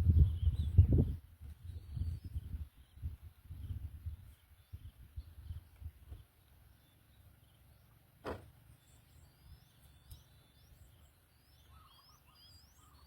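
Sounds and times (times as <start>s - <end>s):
single knock: 8.2s - 8.5s
short rising bird chirps: 8.4s - 13.0s.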